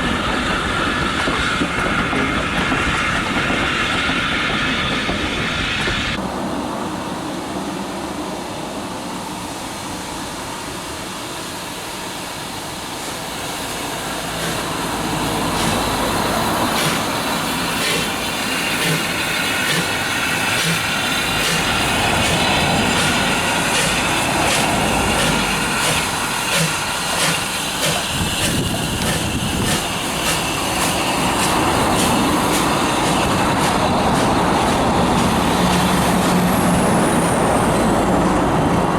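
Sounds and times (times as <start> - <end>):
train running past: 0.0 - 38.9
wheels clicking over rail joints: 14.3 - 36.5.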